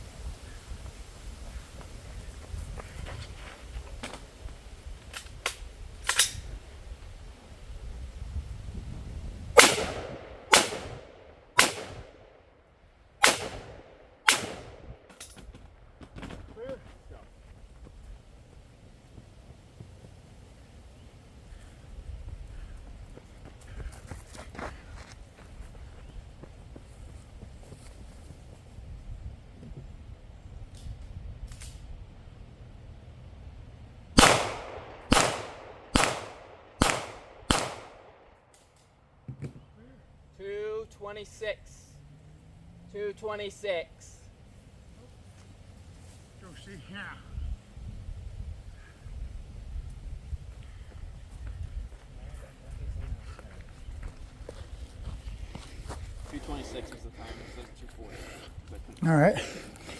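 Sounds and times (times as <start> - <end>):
gunshots with echo: 9.6 - 12.2, 13.2 - 15.0, 34.2 - 38.2.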